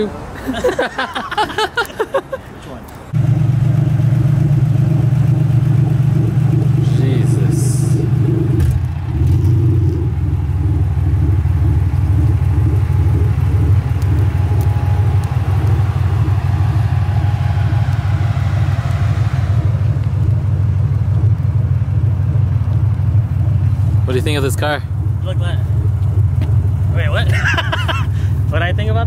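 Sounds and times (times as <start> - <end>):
road noise: 0.0 - 29.0
car engine and exhaust rumble: 2.8 - 29.0.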